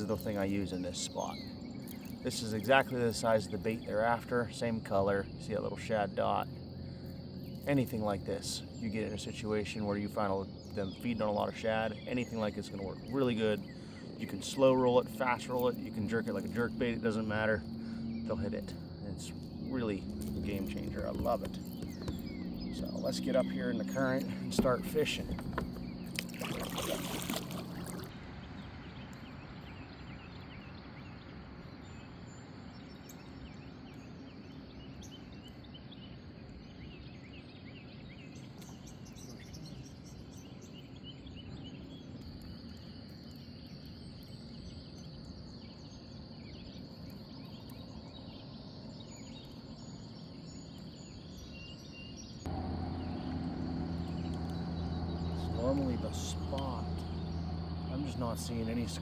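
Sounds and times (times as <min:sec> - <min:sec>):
small birds chirping: 0:00.0 - 0:59.0
river current: 0:19.4 - 0:28.1, 0:52.5 - 0:59.0
low steady hum: 0:52.4 - 0:59.0.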